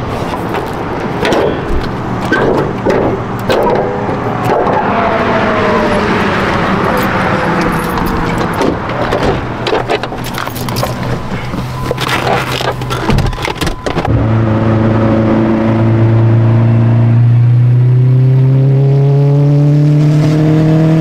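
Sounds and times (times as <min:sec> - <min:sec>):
car engine running: 0:00.0 - 0:18.5
turbo whine: 0:01.4 - 0:18.8.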